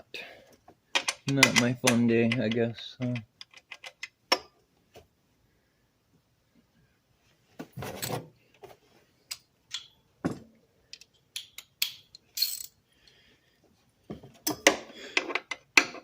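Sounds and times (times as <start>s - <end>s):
metal hand tools clinking: 11.4s - 12.8s.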